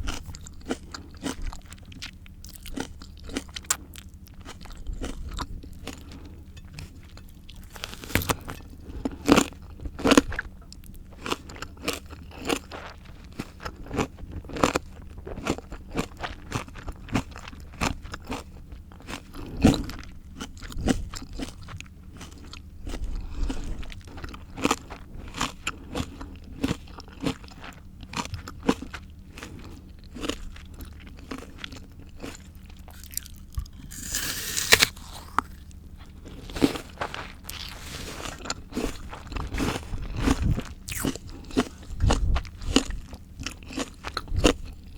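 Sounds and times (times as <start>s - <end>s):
crunchy bites and chewing: 0.0s - 44.9s.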